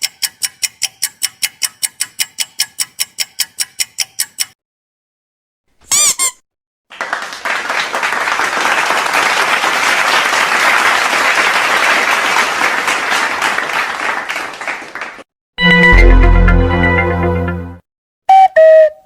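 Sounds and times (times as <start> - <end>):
high squeak: 5.8 - 6.4
crowd applauding: 6.9 - 15.3.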